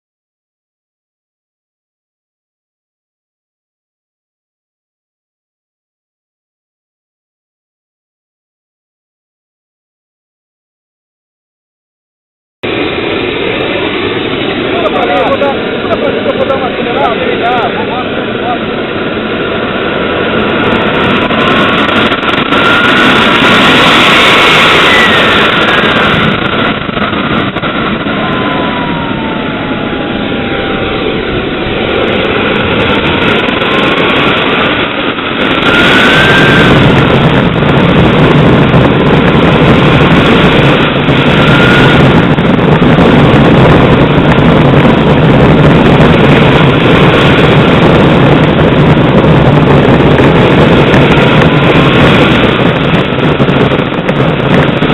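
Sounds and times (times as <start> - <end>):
model jet engine whine: 12.7 - 54.9.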